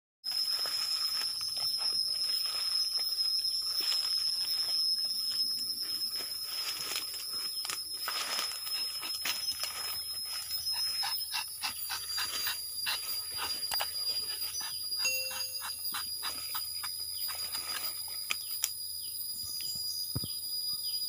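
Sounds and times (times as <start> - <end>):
high-pitched insect drone: 0.3 - 21.0.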